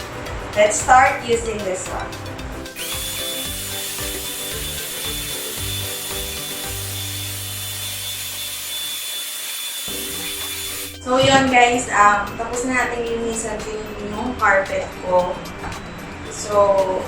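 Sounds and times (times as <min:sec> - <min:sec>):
vacuum cleaner whining: 0:02.8 - 0:11.0.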